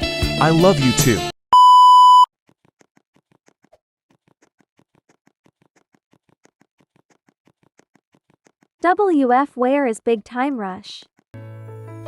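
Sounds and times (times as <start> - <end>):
loud electronic beep: 1.6 - 2.3.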